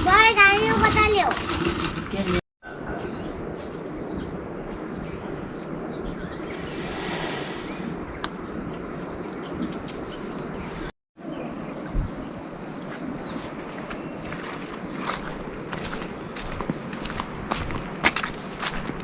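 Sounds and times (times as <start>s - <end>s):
small birds chirping: 2.6s - 19.0s
outdoor rushing noise: 6.3s - 8.5s.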